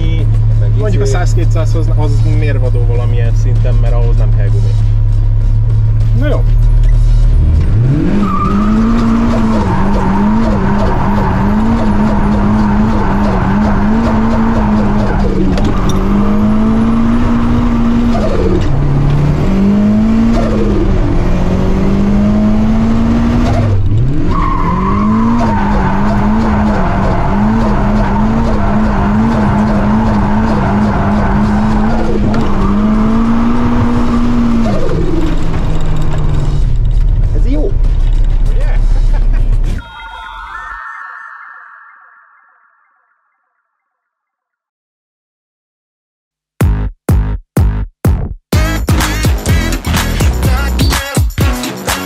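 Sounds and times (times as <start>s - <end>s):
car engine at high revs: 0.0s - 39.8s
tyres squealing: 24.2s - 34.3s.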